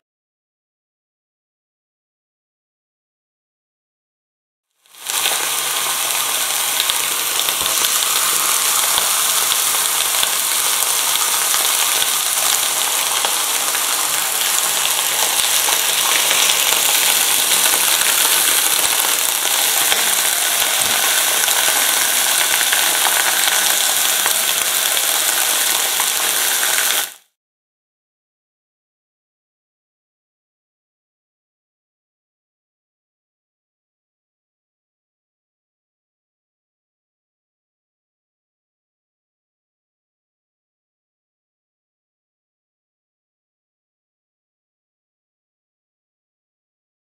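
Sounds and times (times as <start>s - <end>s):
vegetables sizzling in hot oil: 4.8s - 27.4s.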